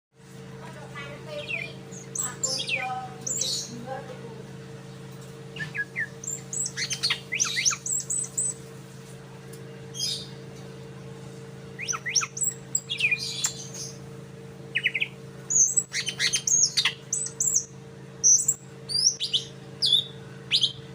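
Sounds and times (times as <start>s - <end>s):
steady low hum: 0.2s - 20.9s
bird chirping song: 1.3s - 3.8s, 5.5s - 8.6s, 9.9s - 10.4s, 11.8s - 14.0s, 14.7s - 20.9s.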